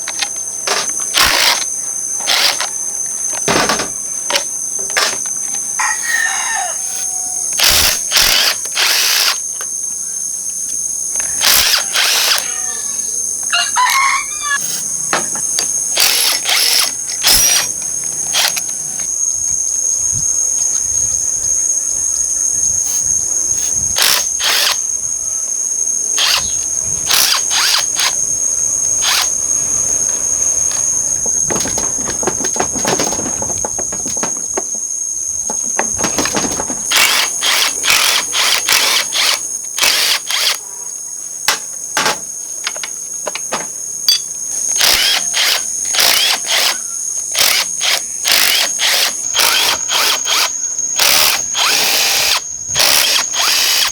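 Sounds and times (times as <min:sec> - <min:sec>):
drill or ratchet running: 0:00.1 - 0:02.7, 0:07.6 - 0:09.4, 0:11.4 - 0:12.4, 0:15.9 - 0:17.7, 0:18.3 - 0:18.6, 0:24.0 - 0:24.8, 0:26.2 - 0:28.2, 0:29.0 - 0:29.3, 0:36.8 - 0:40.6, 0:44.8 - 0:53.9
tools clicking on metal: 0:41.5 - 0:46.8.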